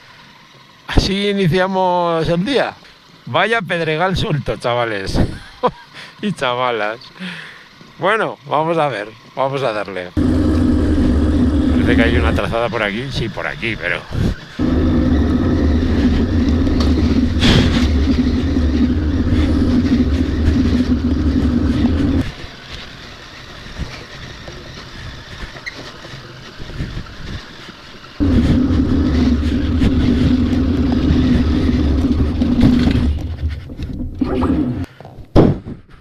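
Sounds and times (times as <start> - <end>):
motorcycle engine running: 10.2 - 13.1, 14.6 - 22.4, 28.2 - 34.9.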